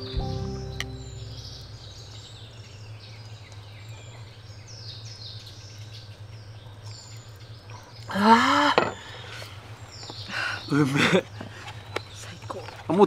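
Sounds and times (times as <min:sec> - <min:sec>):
steady low hum: 0:00.0 - 0:03.0
birds singing descending chirps: 0:00.0 - 0:06.1.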